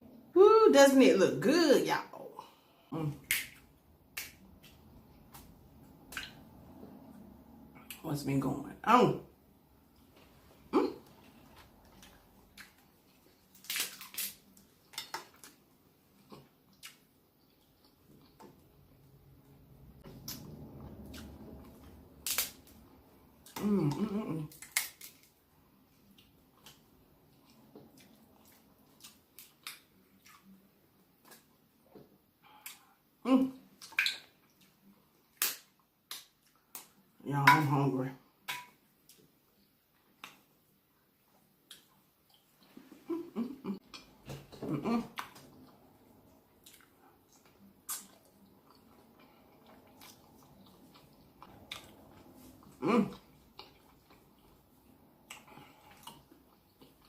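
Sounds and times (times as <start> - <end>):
soft chewing: 9.8 - 37.2, 38.8 - 57.0
crab shells cracking: 13.6 - 14.4, 22.2 - 22.7, 24.5 - 25.3
eating sounds: 41.4 - 57.0.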